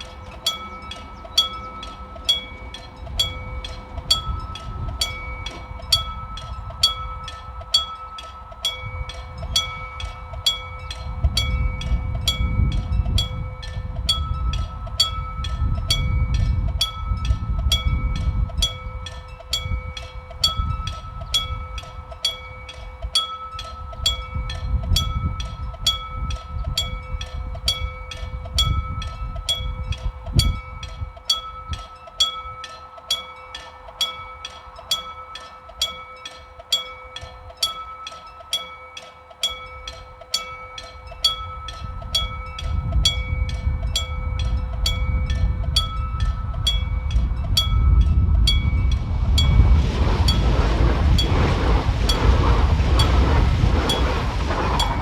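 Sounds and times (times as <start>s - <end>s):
level crossing warning bell: 0.0s - 55.0s
train wheels rumbling on rails: 0.0s - 55.0s.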